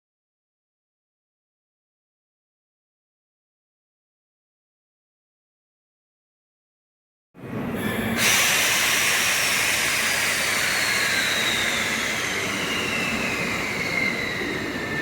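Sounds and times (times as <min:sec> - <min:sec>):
train running on rails: 0:07.4 - 0:15.0
loud hiss: 0:08.2 - 0:14.3.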